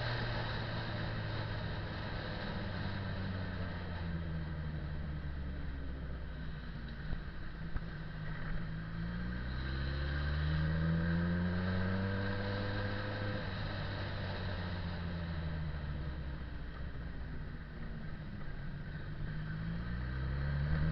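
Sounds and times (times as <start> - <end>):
motorcycle engine accelerating: 7.8 - 20.9.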